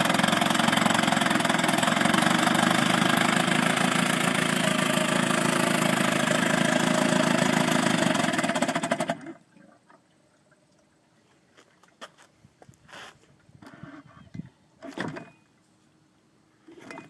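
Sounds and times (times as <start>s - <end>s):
small engine running: 0.0s - 9.4s.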